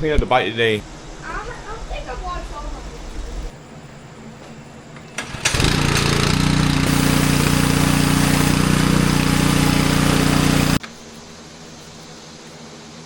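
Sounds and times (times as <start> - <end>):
pressure washer spraying: 5.2 - 10.8.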